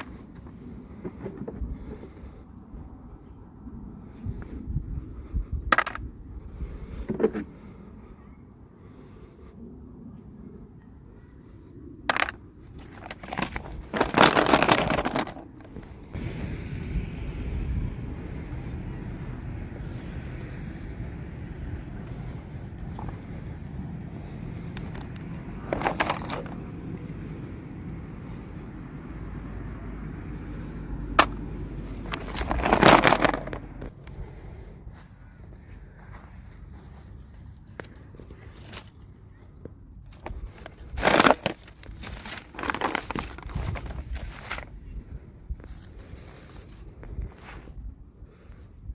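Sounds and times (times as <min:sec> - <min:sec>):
low steady hum: 0:00.0 - 0:48.9
low steady rumble: 0:00.0 - 0:48.9
crackly packaging rustling: 0:12.1 - 0:16.2, 0:22.0 - 0:26.8, 0:31.2 - 0:34.2, 0:36.3 - 0:44.8, 0:45.6 - 0:47.7
plastic packaging crinkling: 0:12.8 - 0:15.4, 0:24.8 - 0:26.6, 0:32.0 - 0:33.9, 0:40.4 - 0:44.7
packaging clicks: 0:24.8 - 0:26.6, 0:32.0 - 0:33.9.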